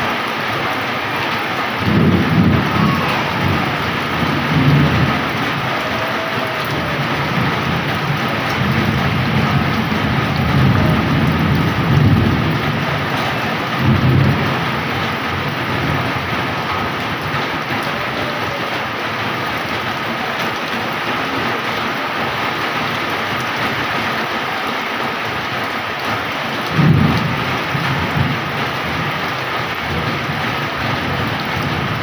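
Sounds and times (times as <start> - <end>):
heavy rain pouring: 0.0 - 32.0
rolls of thunder: 1.2 - 18.8, 26.5 - 32.0.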